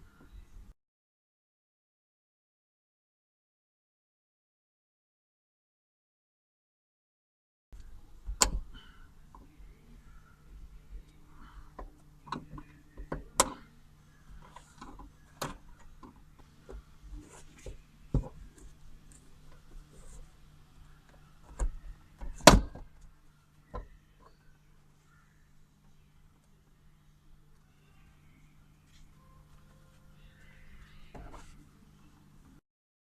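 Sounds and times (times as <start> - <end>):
faint steady hum: 7.8 - 32.6.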